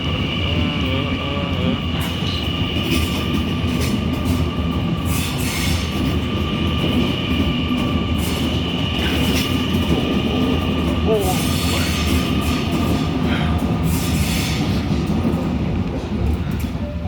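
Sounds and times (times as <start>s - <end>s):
train rumble: 0.0s - 17.0s
wheels clanking on track: 0.0s - 17.0s.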